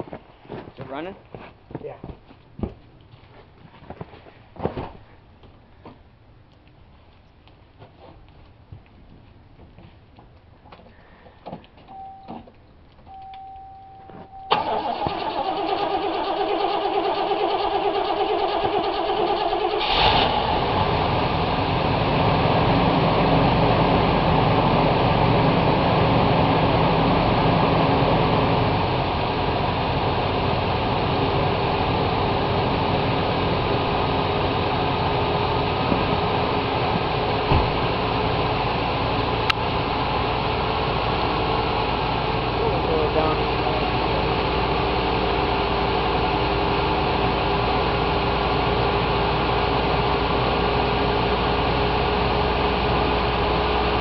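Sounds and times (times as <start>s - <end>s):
short tone: 11.9s - 12.4s, 13.1s - 14.6s
car engine idling: 12.0s - 54.0s
starter motor cranking: 14.5s - 20.4s.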